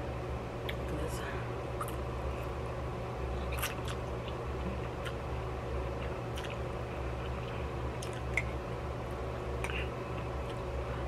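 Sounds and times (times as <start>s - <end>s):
low background hum: 0.0s - 11.0s
person chewing noodles: 3.4s - 8.6s.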